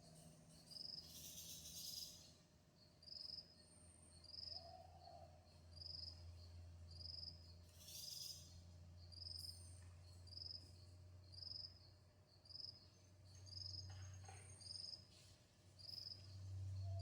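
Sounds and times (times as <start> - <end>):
low steady hum: 15.8 - 17.0.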